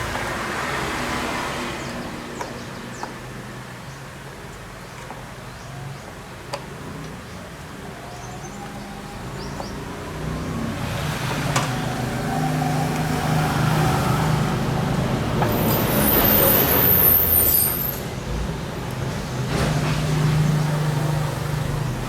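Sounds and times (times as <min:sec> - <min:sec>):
high squeal: 0:11.9 - 0:18.2.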